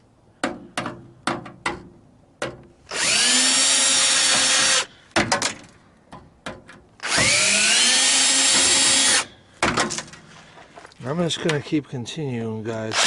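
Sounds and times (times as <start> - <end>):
power drill motor whining: 2.9 - 4.9, 7.0 - 9.3.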